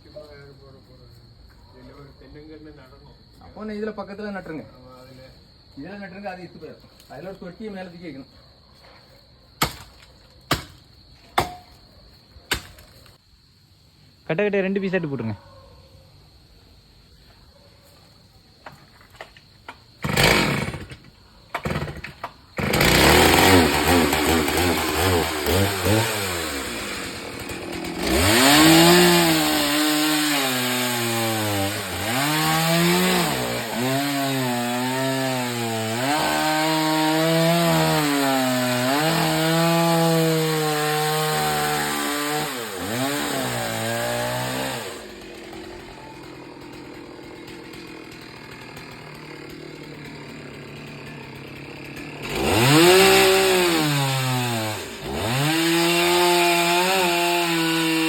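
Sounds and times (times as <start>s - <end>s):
chainsaw cutting wood: 19.0s - 58.0s.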